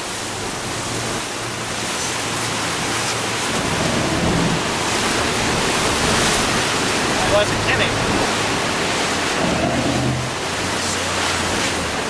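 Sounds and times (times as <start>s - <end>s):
boat engine hum: 0.0s - 12.0s
water noise: 0.0s - 12.0s
wind rushing: 8.0s - 10.7s.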